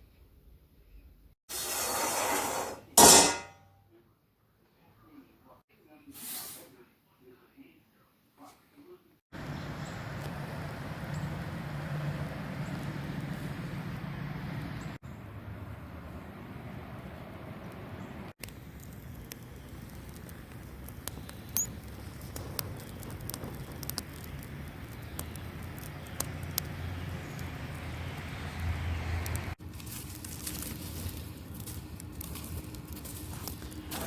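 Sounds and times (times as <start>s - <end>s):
campfire crackling: 9.4s - 14.9s, 15.7s - 34.0s.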